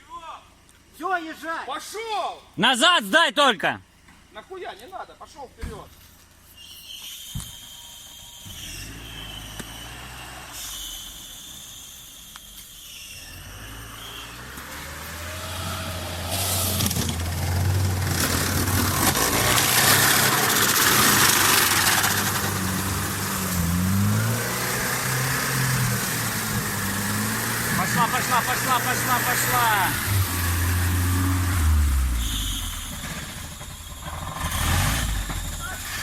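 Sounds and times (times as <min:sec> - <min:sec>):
off-road vehicle engine revving: 0:08.4 - 0:11.9, 0:12.9 - 0:36.0.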